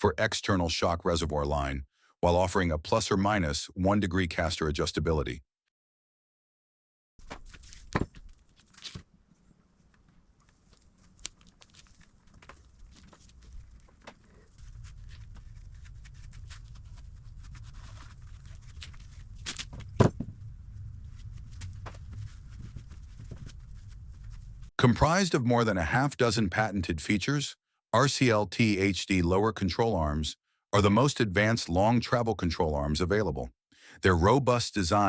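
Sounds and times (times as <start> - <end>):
low steady hum: 9.4 - 25.1.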